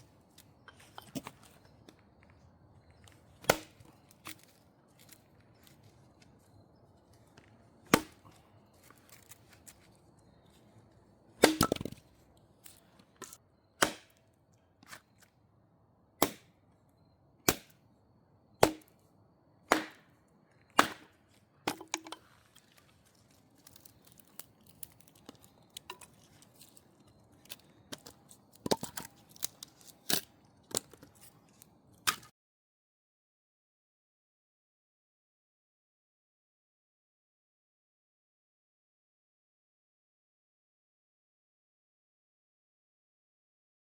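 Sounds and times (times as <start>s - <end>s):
firewood being chopped: 2.9s - 5.9s, 7.2s - 9.9s, 11.4s - 14.2s, 16.2s - 16.6s, 17.5s - 17.8s, 18.6s - 19.0s, 19.7s - 31.4s, 32.0s - 32.3s.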